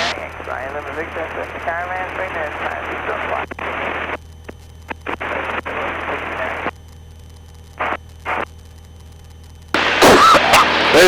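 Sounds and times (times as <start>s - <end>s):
headset intercom hiss: 0.0s - 6.8s, 7.7s - 8.5s.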